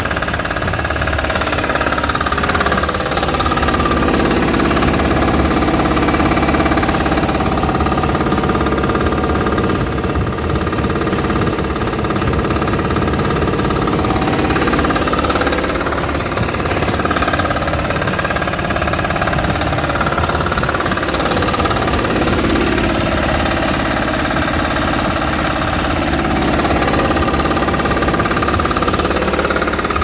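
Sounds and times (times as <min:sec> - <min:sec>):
farm machine engine chugging: 0:00.0 - 0:30.0
mechanical humming: 0:00.0 - 0:30.0.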